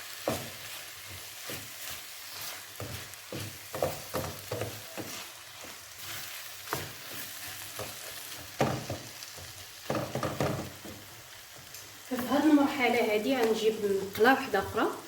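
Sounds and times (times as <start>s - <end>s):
stuffing sizzling in a frying pan: 0.0s - 15.0s
spoon scraping and knocking on pan: 0.1s - 11.7s.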